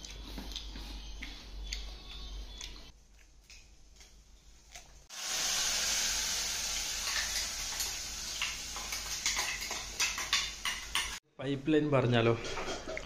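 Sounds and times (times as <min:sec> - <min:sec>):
food sizzling in hot oil: 0:05.1 - 0:11.2.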